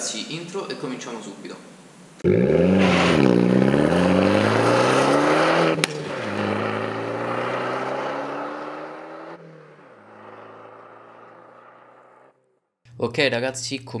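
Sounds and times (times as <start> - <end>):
car engine accelerating: 2.2 - 12.6.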